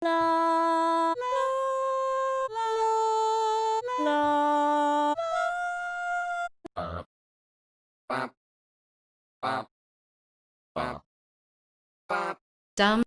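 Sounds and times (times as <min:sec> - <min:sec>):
solo melody of held notes: 0:00.0 - 0:06.6.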